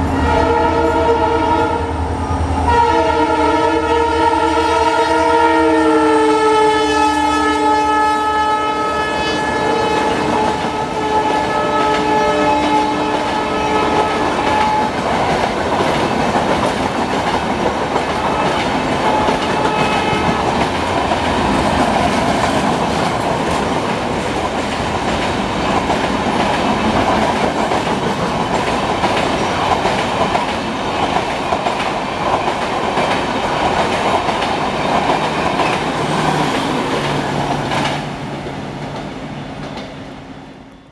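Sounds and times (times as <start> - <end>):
train horn: 0.0 - 15.0, 18.2 - 20.7
wheel and rail noise: 8.9 - 40.9
clickety-clack over rail joints: 9.9 - 40.2.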